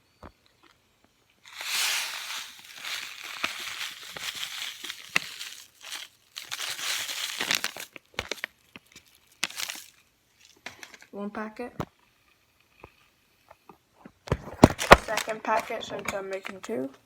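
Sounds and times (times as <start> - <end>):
paper packets crinkling: 1.5 - 10.6, 14.6 - 15.7.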